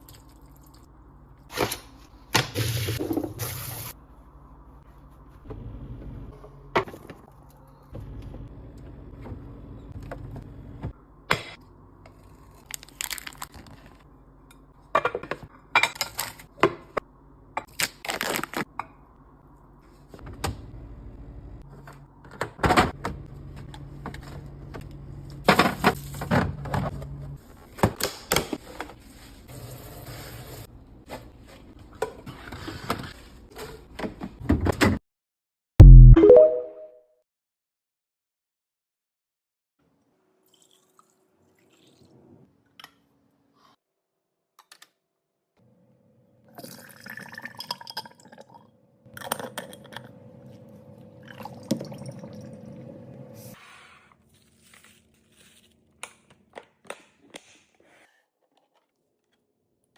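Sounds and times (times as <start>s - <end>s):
plastic crinkling: 12.6s - 14.0s.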